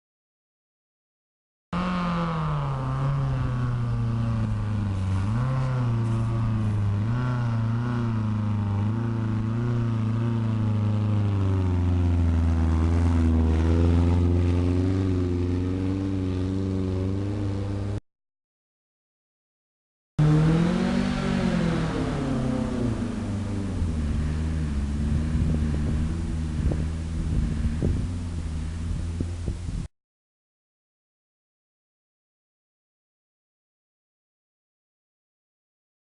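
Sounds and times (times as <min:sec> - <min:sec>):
car engine pulling hard uphill: 0:01.8 - 0:18.0, 0:20.2 - 0:29.9.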